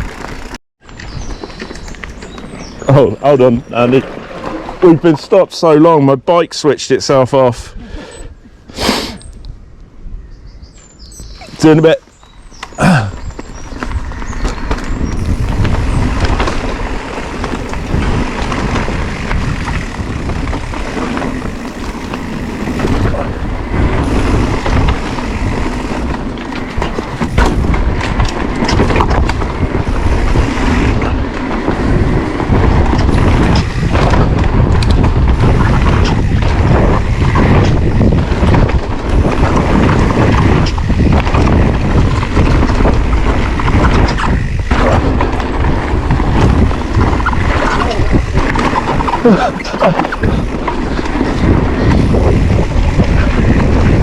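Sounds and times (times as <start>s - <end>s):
wind on microphone: 7.7s - 54.0s
bike knocks and rattles: 12.6s - 54.0s
tyre rumble: 12.7s - 54.0s.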